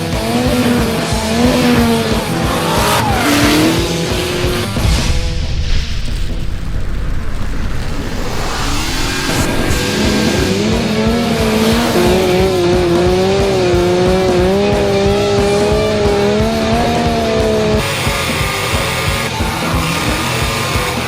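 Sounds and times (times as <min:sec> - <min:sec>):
tyres squealing: 0:00.0 - 0:04.8
background music: 0:00.0 - 0:06.3, 0:09.4 - 0:21.0
car engine at high revs: 0:00.0 - 0:21.0.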